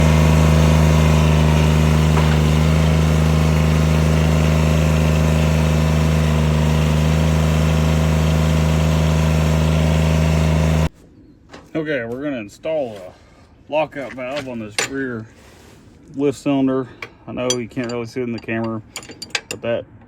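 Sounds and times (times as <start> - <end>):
diesel tractor engine running: 0.0 - 10.9.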